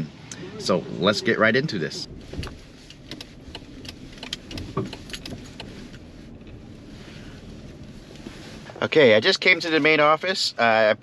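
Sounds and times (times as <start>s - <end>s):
car low rumble: 0.0s - 11.0s
light clicks and rattles: 2.2s - 6.6s.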